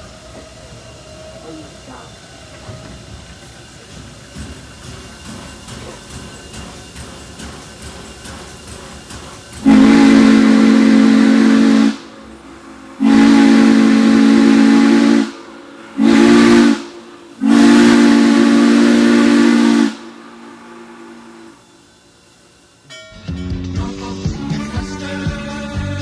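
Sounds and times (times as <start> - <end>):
steam locomotive chime whistle: 9.6 - 22.1.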